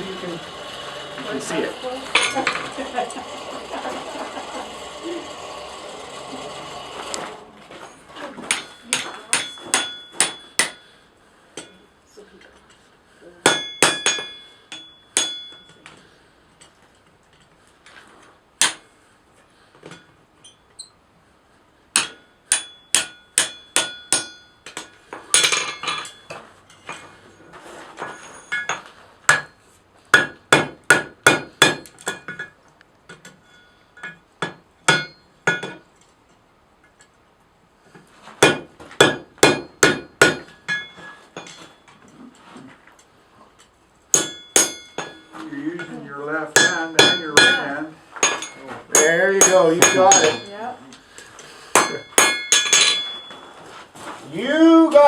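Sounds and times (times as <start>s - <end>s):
hammer striking iron on anvil: 8.5s - 10.9s, 11.6s - 11.8s, 13.4s - 15.8s, 18.6s - 18.9s, 21.9s - 27.0s, 28.5s - 35.8s, 38.4s - 41.7s, 44.1s - 50.6s, 51.7s - 53.3s.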